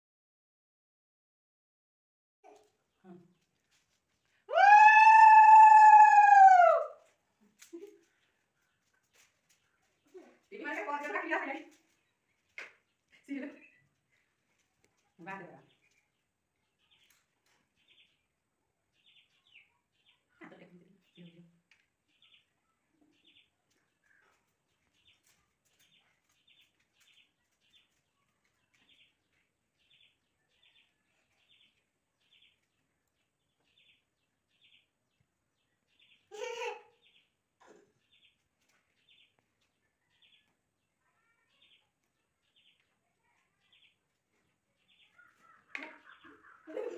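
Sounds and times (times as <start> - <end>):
small bird chirping: 15.6 - 18.3, 19.0 - 46.9.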